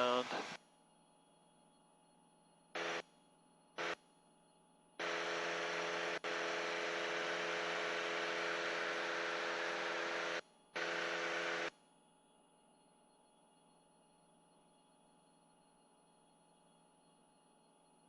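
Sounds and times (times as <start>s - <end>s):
airplane cockpit engine hum: 2.8s - 3.0s, 5.0s - 11.7s.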